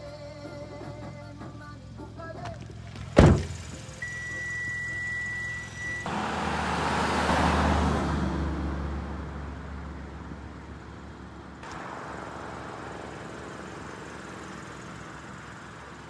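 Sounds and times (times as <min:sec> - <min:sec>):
vehicle passing by: 0:06.1 - 0:16.0.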